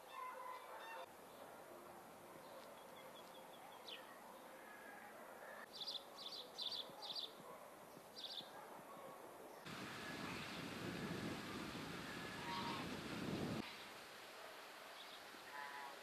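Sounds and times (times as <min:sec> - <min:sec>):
small birds chirping: 0:05.6 - 0:14.0.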